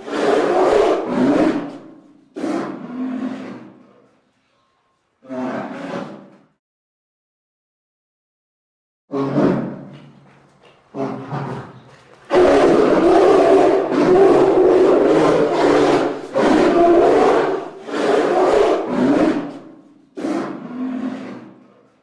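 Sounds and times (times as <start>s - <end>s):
large animal roaring: 0.0s - 3.9s, 5.2s - 6.4s, 9.1s - 9.9s, 10.9s - 21.9s.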